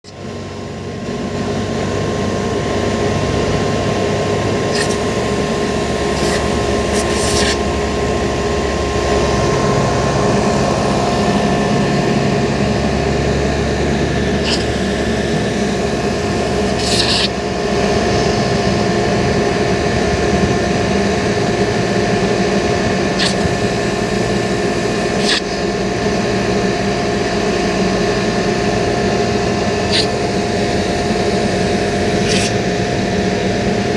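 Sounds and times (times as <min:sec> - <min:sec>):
steady mechanical drone: 0:00.0 - 0:33.9
short hissing bursts: 0:04.7 - 0:05.2, 0:06.0 - 0:07.6, 0:14.4 - 0:14.8, 0:16.7 - 0:17.4, 0:23.2 - 0:23.7.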